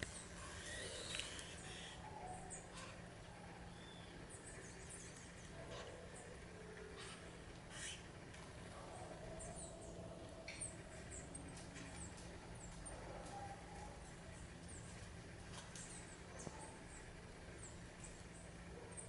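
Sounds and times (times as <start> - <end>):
high chip calls of birds: 0.0 - 15.1
low background hum: 0.0 - 19.0.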